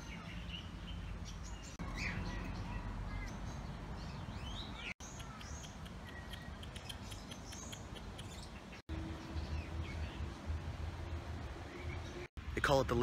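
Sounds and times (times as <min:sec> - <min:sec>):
birds whistling: 0:00.0 - 0:10.3
birds chirping: 0:00.0 - 0:13.0.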